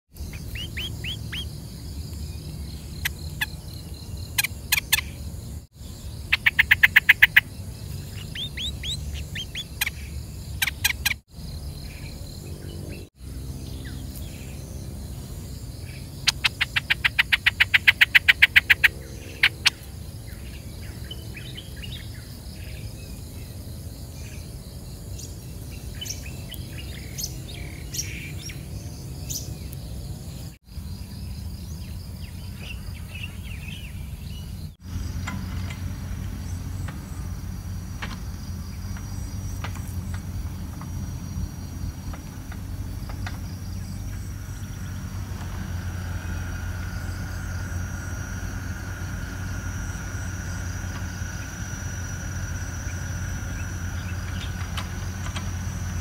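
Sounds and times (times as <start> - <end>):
small songbird chirping: 0.1 - 56.0
low background hum: 0.2 - 56.0.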